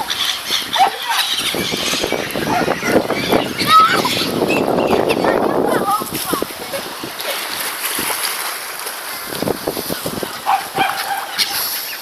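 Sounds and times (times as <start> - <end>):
pond water splashing: 0.0 - 12.0
bird call: 10.5 - 12.0.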